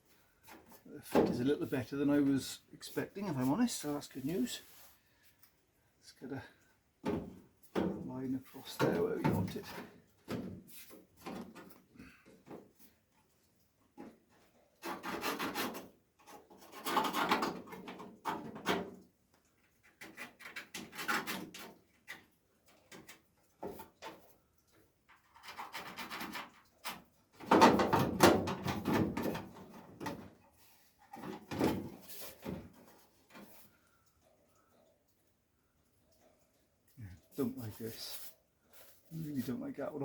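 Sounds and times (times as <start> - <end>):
scraping on sheet metal: 14.8 - 18.6, 25.2 - 26.8.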